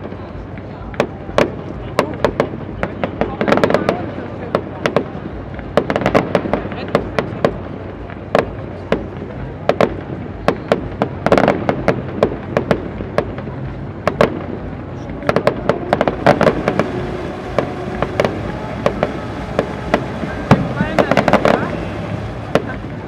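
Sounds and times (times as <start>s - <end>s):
fireworks bursting: 0.0s - 23.0s.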